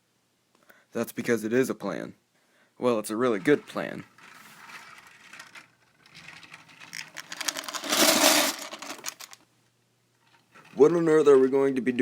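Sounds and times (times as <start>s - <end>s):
small hard objects clattering: 3.4s - 9.4s.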